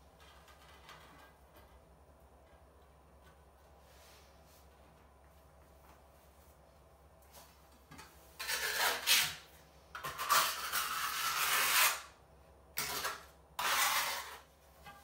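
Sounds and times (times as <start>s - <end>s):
trowel scraping mortar: 8.4s - 9.4s, 10.0s - 12.1s, 12.8s - 14.5s.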